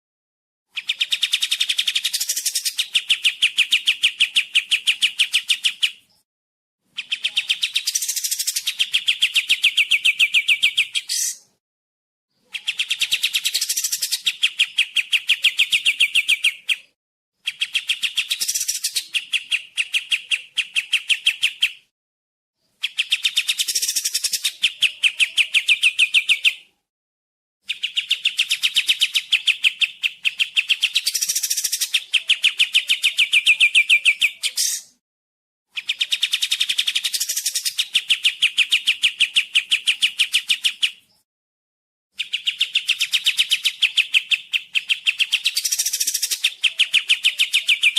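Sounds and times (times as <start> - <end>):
songbird singing high clear notes: 7.0 - 11.5, 12.3 - 21.9, 22.6 - 26.7, 27.6 - 35.0, 35.8 - 41.2, 42.2 - 47.9.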